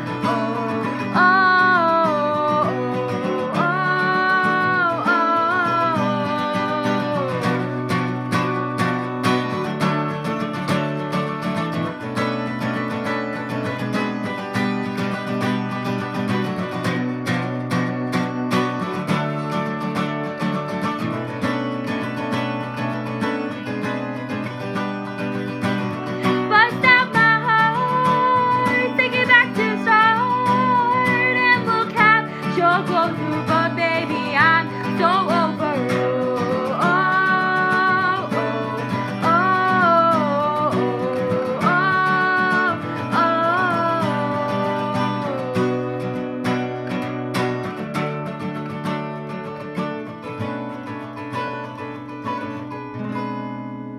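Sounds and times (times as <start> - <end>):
person singing: 0.0 - 9.5, 26.1 - 46.8
acoustic guitar strumming: 0.0 - 53.9.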